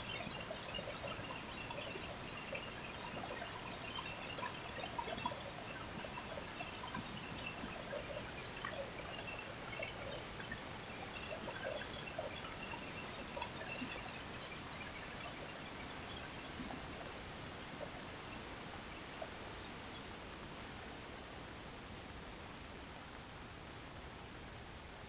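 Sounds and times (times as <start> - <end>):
drips and splashes: 0.0 - 19.6.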